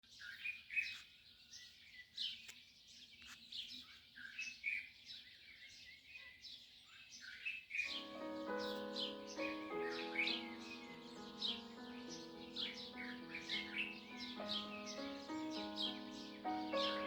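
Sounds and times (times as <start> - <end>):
birds chirping: 0.0 - 17.0
music with held notes: 7.9 - 17.0.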